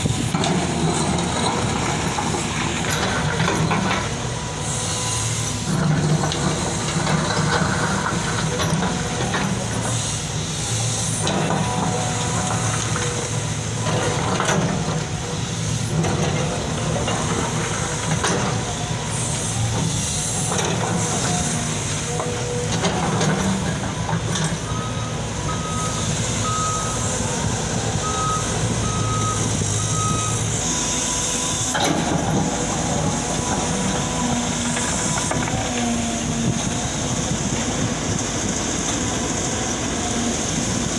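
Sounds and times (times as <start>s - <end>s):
excavator diesel engines running: 0.0s - 40.9s
backup alarm beeping: 24.7s - 31.6s.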